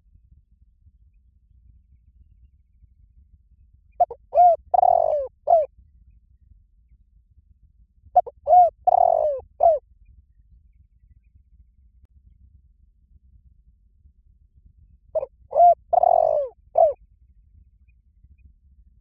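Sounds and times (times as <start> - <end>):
dove cooing: 4.0 - 5.7, 8.2 - 9.8, 15.2 - 17.0.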